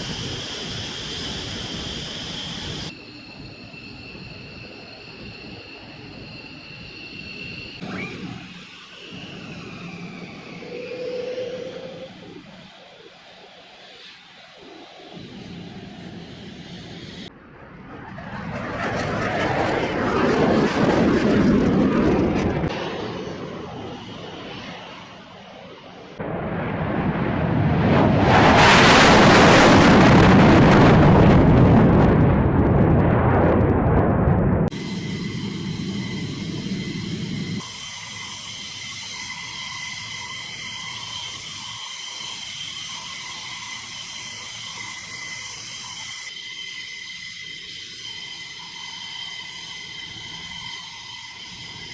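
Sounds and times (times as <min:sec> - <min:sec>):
jet engines passing: 0:00.0 - 0:51.9
low rumble: 0:26.2 - 0:34.8.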